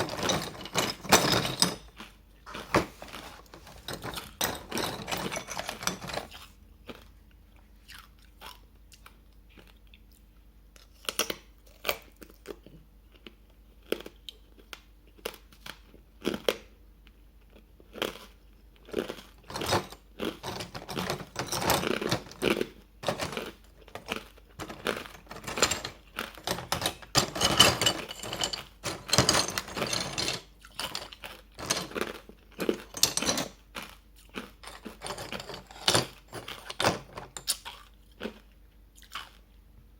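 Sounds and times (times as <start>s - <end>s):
crunching ice being chewed: 6.4s - 19.4s, 33.7s - 35.0s, 37.5s - 39.5s.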